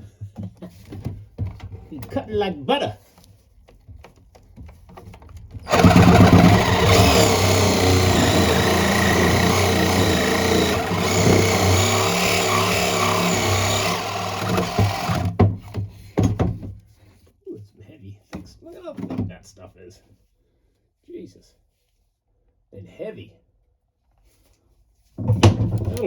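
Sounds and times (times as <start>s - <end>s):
power saw cutting metal pipe: 5.7s - 15.4s.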